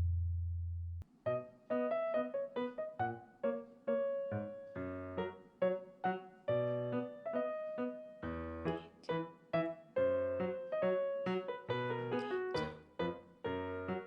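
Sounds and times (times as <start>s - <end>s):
bright keyboard melody: 1.3s - 14.0s.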